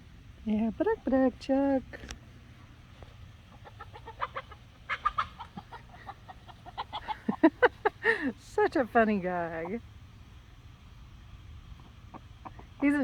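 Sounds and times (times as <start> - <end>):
chickens clucking: 0.8 - 13.0.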